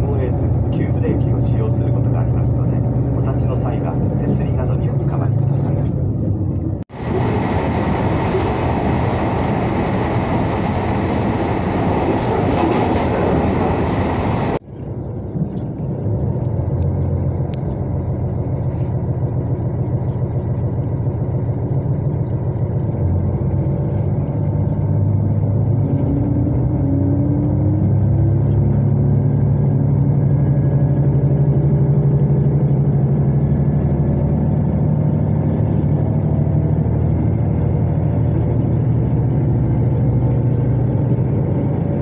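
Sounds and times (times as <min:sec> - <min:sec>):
train wheel and rail noise: 0:00.0 - 0:24.3, 0:35.3 - 0:42.0
diesel engine hum: 0:00.0 - 0:42.0.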